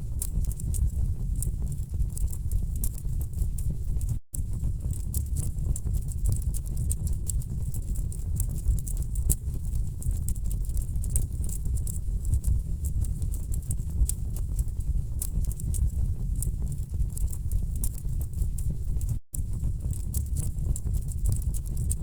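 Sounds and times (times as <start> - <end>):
wood fire crackling and popping: 15.2 - 22.0.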